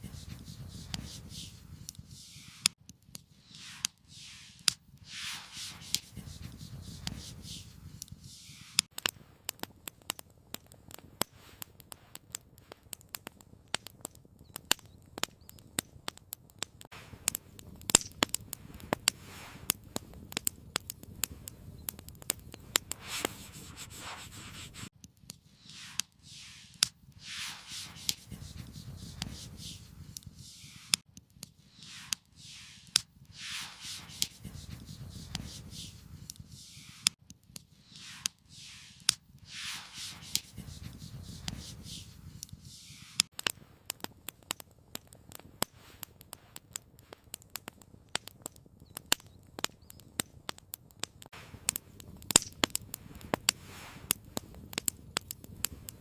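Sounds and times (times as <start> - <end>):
scraping strokes: 0.0 - 8.9, 22.7 - 31.0, 31.6 - 43.3
campfire crackling: 0.0 - 56.0.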